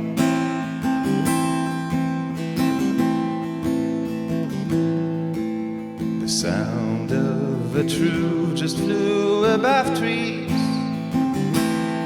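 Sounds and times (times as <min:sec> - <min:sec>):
strummed acoustic guitar: 0:00.0 - 0:12.0
person singing: 0:06.2 - 0:12.0.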